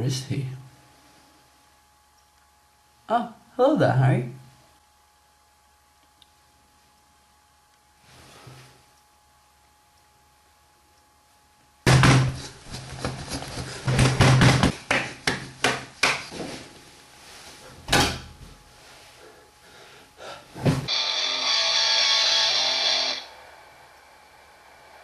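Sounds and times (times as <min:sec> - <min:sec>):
loud irregular knocks and thumps: 0:11.9 - 0:15.8
music: 0:20.9 - 0:23.3.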